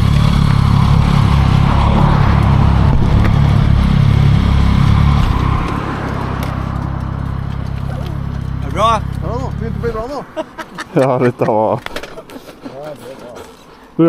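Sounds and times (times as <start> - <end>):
wind noise: 0.0 - 7.3
motorcycle engine rumble: 0.0 - 10.9.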